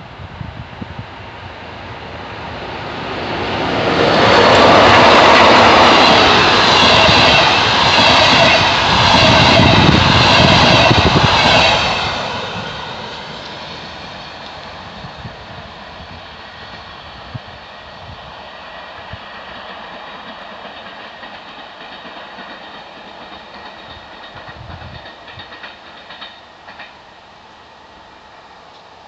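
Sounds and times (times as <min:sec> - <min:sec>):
train wheel rumble and hiss: 0:00.0 - 0:29.0
rail joint clacks: 0:03.6 - 0:15.0, 0:19.4 - 0:27.1.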